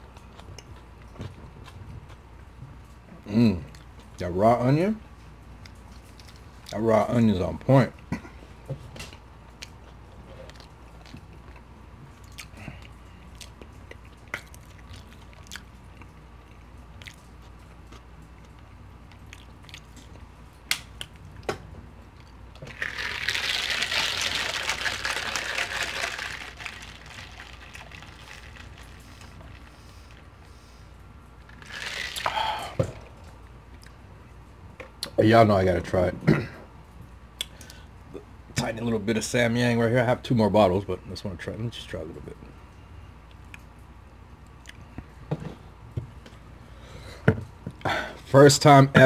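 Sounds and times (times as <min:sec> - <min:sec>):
close chewing with wet smacks: 0:00.0 - 0:03.1, 0:09.0 - 0:20.2.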